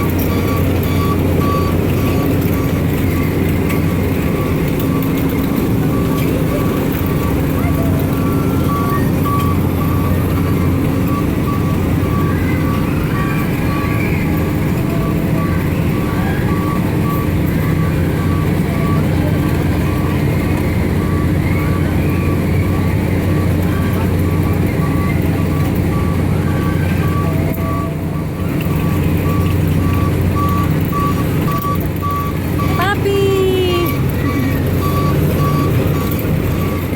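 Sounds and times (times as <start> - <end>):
low engine rumble: 0.0 - 36.9
high electronic beeps: 0.2 - 3.4, 29.2 - 36.9.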